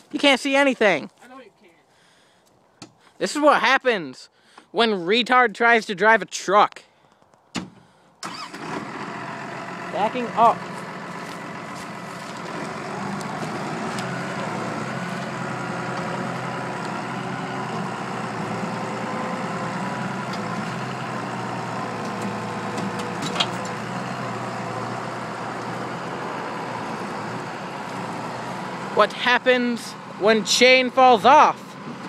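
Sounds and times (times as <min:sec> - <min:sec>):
truck engine running: 0:08.2 - 0:32.0.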